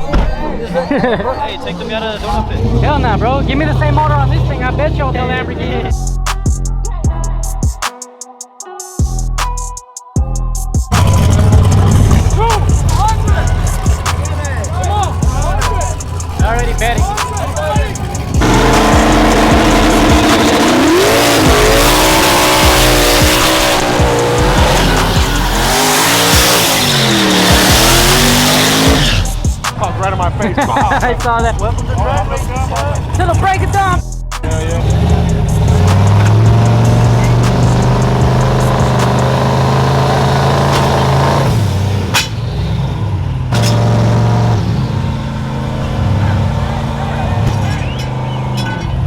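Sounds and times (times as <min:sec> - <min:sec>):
race engine revving: 0:02.0 - 0:06.0, 0:10.9 - 0:49.0
music with thumping beat: 0:06.0 - 0:39.6
tyres squealing: 0:11.4 - 0:33.8, 0:44.8 - 0:49.0.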